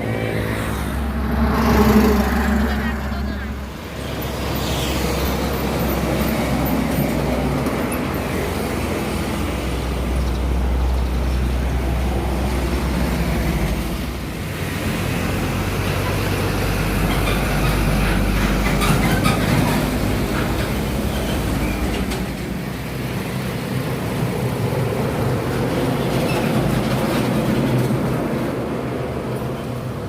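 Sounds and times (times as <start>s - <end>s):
heavy truck engine drone: 0.0s - 30.0s
road noise: 0.0s - 30.0s.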